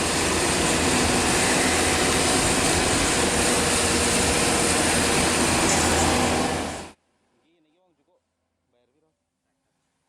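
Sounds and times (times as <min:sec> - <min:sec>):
excavator diesel engine running: 0:00.0 - 0:07.0.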